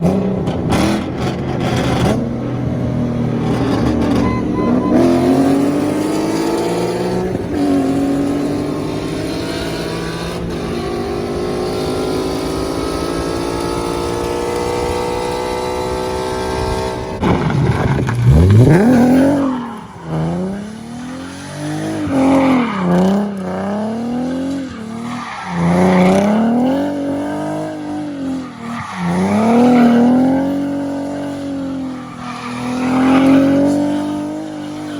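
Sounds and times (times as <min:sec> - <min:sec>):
car engine revving: 0:00.0 - 0:34.9
tyre squeal: 0:03.4 - 0:12.5, 0:17.0 - 0:34.9.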